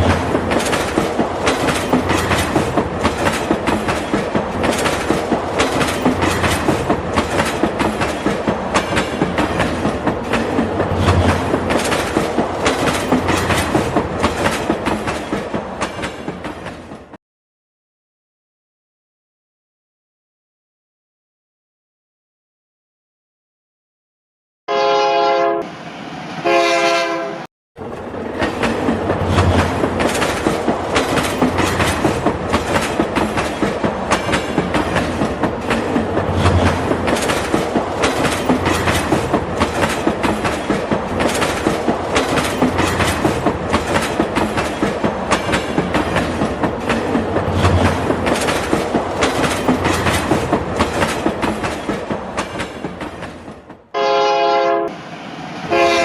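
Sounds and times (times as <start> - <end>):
train rumble: 0.0 - 17.2, 26.4 - 56.0
train wheels clacking on rails: 0.0 - 17.2, 27.8 - 53.9
train horn blasts: 24.7 - 25.7, 26.4 - 27.5, 53.9 - 55.0, 55.7 - 56.0.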